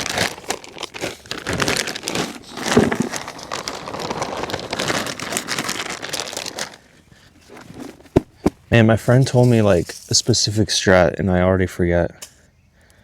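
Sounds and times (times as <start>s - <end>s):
plastic bag crinkling: 0.0s - 10.4s
soil shifting in bag: 0.0s - 10.5s.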